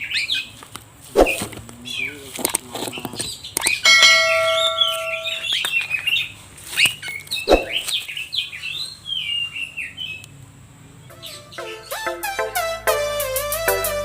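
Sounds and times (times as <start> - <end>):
steady ringing tone: 3.8 - 5.6.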